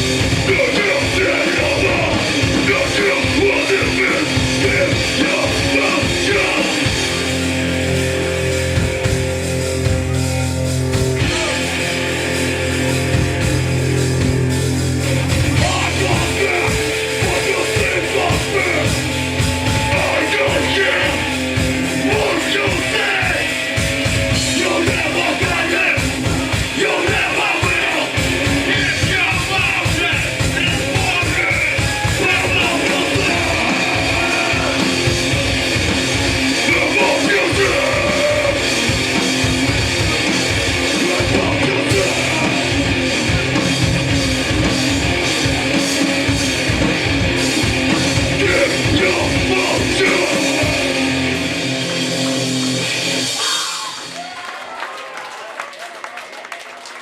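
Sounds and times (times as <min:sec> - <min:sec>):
distorted guitars and bass: 0:00.0 - 0:54.2
fast drumming: 0:00.0 - 0:54.3
shouted vocals: 0:00.3 - 0:07.4, 0:15.4 - 0:39.1, 0:40.2 - 0:43.5, 0:48.2 - 0:51.6, 0:53.1 - 0:56.8.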